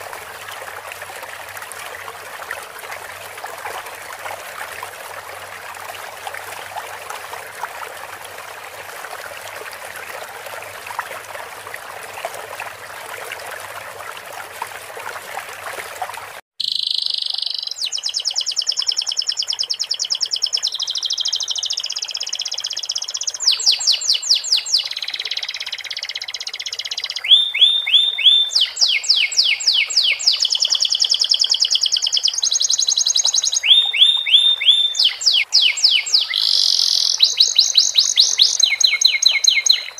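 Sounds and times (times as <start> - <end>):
trickling stream water: 0.0 - 39.9
canary singing trills: 16.6 - 39.9.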